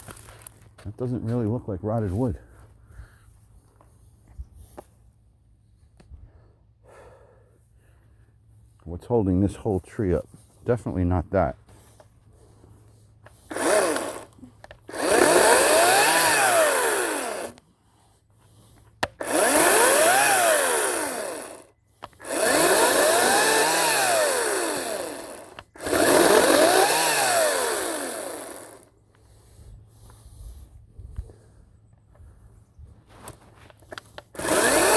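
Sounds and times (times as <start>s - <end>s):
electric chainsaw cutting wood: 13.3s - 17.6s, 19.0s - 29.0s, 33.9s - 34.9s.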